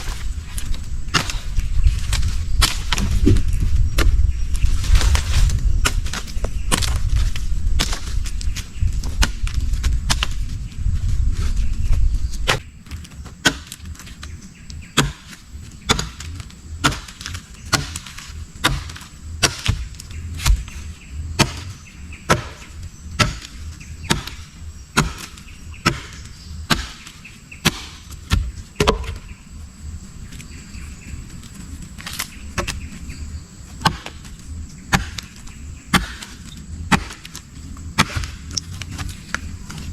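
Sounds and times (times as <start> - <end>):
low rumble: 0.0 - 12.6.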